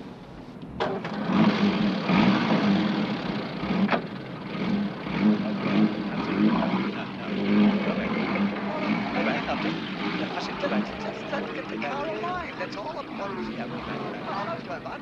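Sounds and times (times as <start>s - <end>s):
car engine running unevenly: 0.0s - 15.0s.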